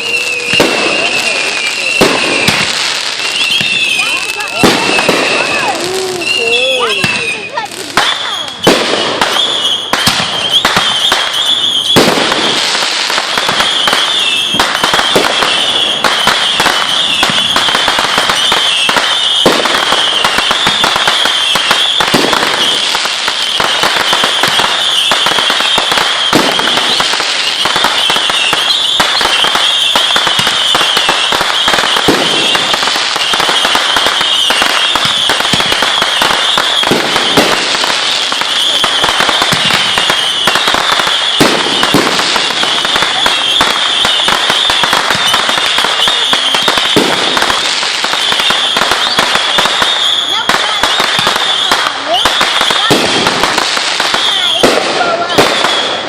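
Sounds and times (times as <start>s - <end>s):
fireworks popping and crackling: 0.0s - 56.0s
loud firework bangs: 0.0s - 56.0s.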